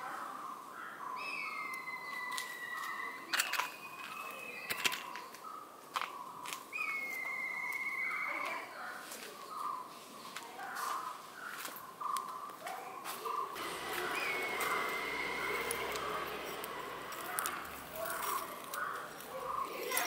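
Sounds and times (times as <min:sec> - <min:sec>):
birds chirping: 0:00.0 - 0:20.0
sharp cracks: 0:13.6 - 0:19.4
bird whistling long notes: 0:13.6 - 0:19.7.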